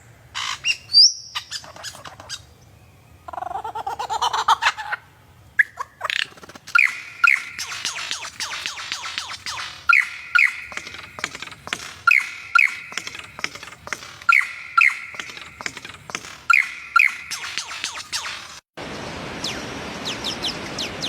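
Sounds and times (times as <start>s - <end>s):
short bird chirps: 6.7s - 10.8s
bird two-note call: 9.9s - 10.8s, 12.1s - 13.0s.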